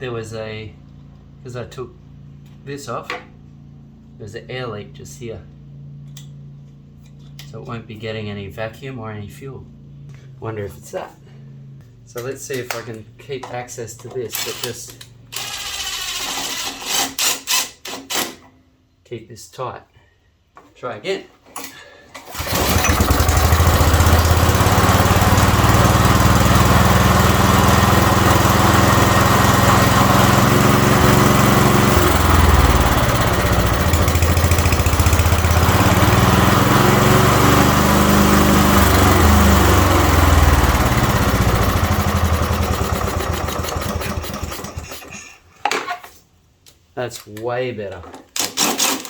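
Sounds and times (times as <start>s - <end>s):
lawnmower engine running: 22.2s - 45.3s.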